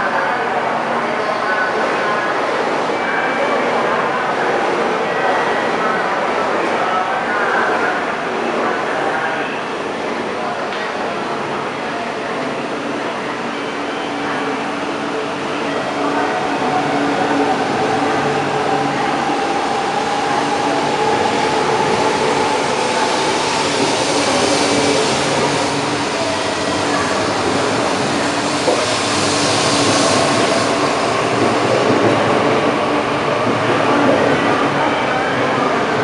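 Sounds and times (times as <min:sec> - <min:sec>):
train running noise: 0:13.0 - 0:36.0.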